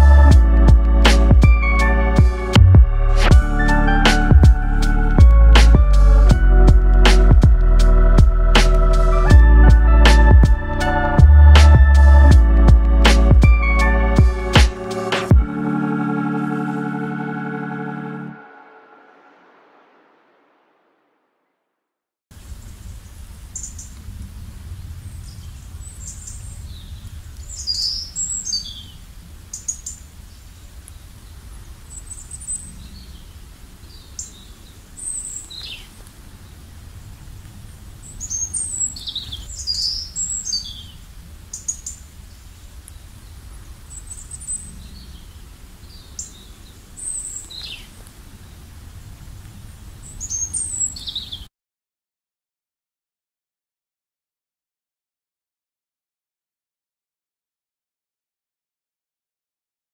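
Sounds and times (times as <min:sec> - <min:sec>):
steady low rumble: 0:00.0 - 0:17.2.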